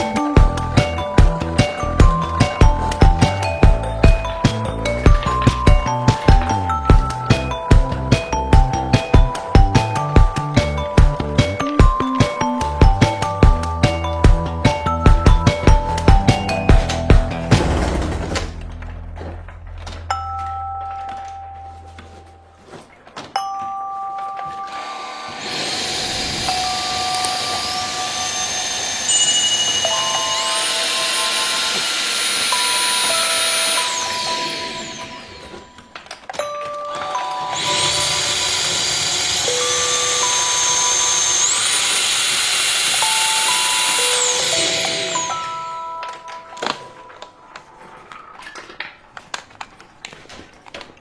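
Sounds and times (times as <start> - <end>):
stick vacuum motor whining: 0.0 - 20.0, 24.7 - 49.4
background music: 0.0 - 22.8, 23.7 - 47.8
two-tone electronic chime: 23.4 - 42.0, 42.9 - 47.2
vacuum motor whining: 24.7 - 36.1, 36.9 - 47.2.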